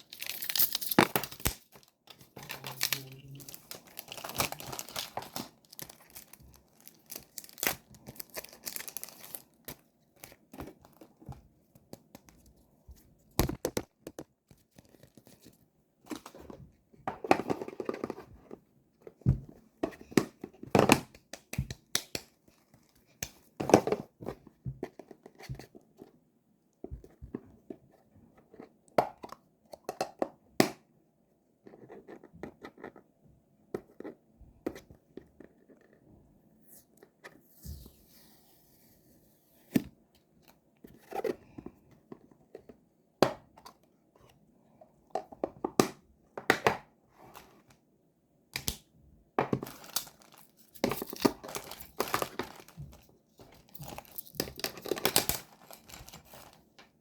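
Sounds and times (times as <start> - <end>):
plastic packaging crinkling and tearing: 0.0 - 10.4, 49.6 - 56.8.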